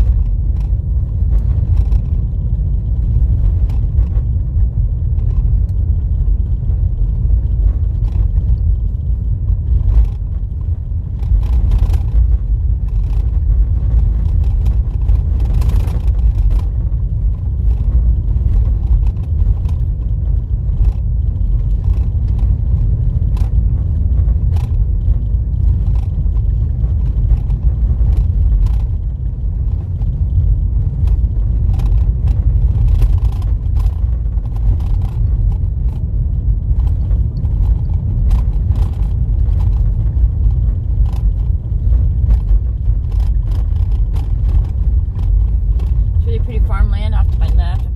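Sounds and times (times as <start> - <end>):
small clicks and knocks: 0.0 - 4.4, 5.1 - 46.2
tyres rumbling on dirt road: 0.0 - 47.9.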